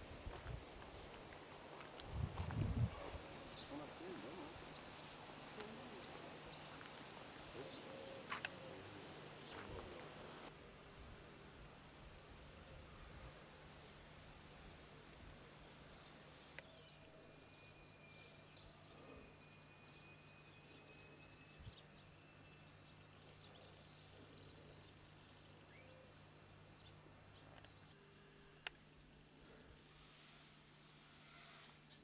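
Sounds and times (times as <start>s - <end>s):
small birds chirping: 2.4s - 10.0s, 14.7s - 28.0s.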